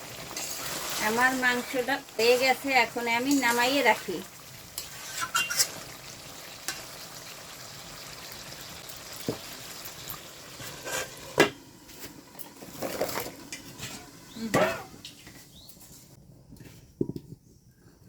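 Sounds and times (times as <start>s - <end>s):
curry sizzling in a pot: 0.0s - 15.6s
pot and utensils clanking: 4.8s - 5.9s, 10.6s - 15.4s.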